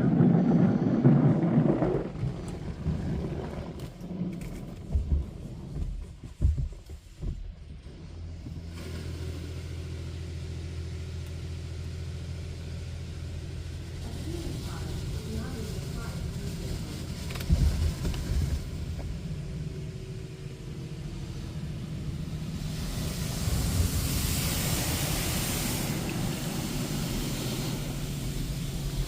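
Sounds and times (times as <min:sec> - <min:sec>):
low mechanical hum: 0:03.6 - 0:29.0
dull thumps: 0:04.8 - 0:07.8
rush of water spray: 0:08.7 - 0:10.1, 0:13.7 - 0:29.0.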